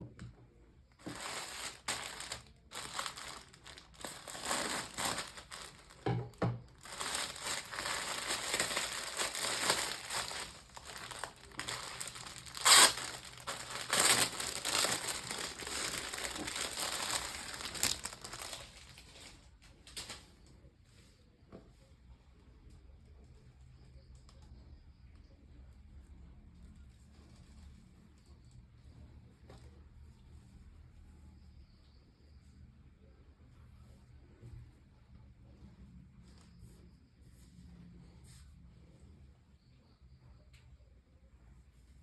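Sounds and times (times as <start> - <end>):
packaging crinkling and rustling: 0.9 - 20.2.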